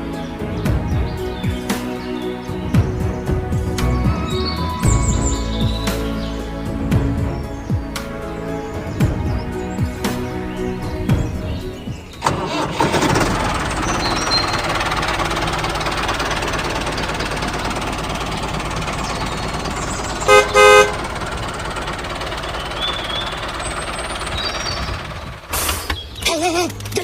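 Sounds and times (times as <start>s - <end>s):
vehicle engine running: 0.0s - 27.0s
horn tooting: 18.6s - 23.8s.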